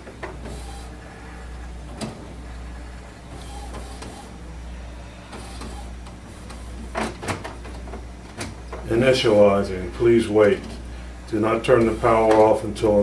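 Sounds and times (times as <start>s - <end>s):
printer mechanism whirring: 0.0s - 13.0s
printer click: 1.9s - 2.4s, 3.3s - 4.4s, 5.3s - 9.4s, 11.7s - 12.7s.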